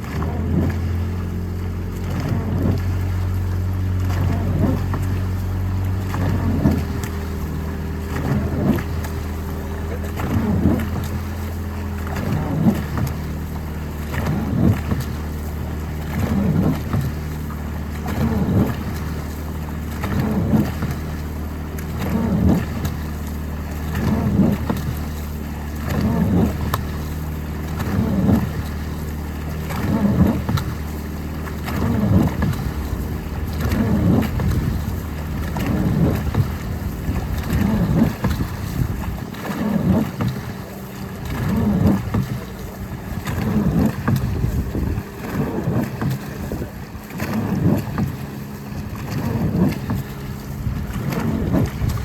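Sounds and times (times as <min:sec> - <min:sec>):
boat engine humming: 0:00.0 - 0:52.0
water swishing and splashing: 0:00.0 - 0:52.0.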